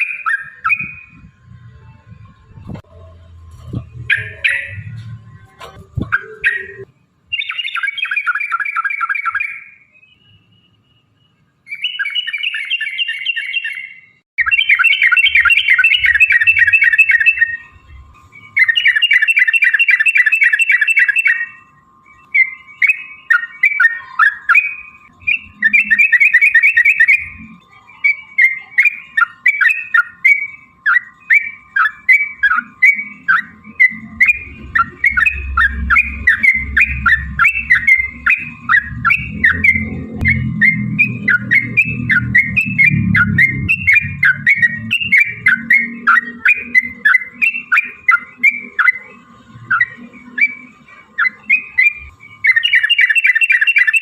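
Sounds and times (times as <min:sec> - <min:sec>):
bird bubbling trill: 0:14.4 - 0:17.7, 0:22.2 - 0:49.0
bird chirped phrases: 0:22.2 - 0:49.0.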